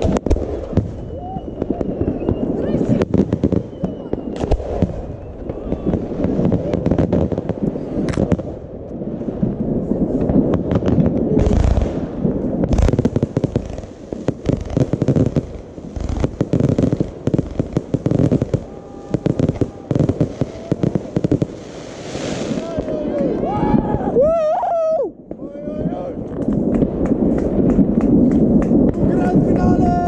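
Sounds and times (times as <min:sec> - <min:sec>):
fireworks boom: 0:00.0 - 0:24.2, 0:25.2 - 0:30.0
fireworks popping and crackling: 0:00.0 - 0:24.4, 0:25.2 - 0:30.0
sharp firework bang: 0:04.3 - 0:08.6, 0:10.2 - 0:18.5.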